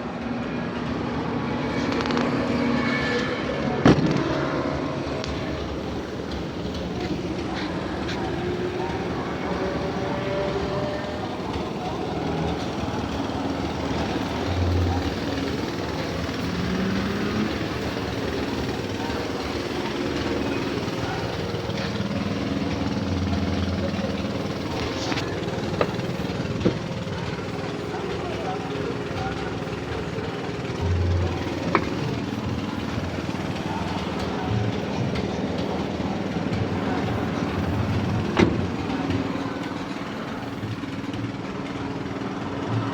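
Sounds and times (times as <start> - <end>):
pickup engine running: 0.0 - 42.9.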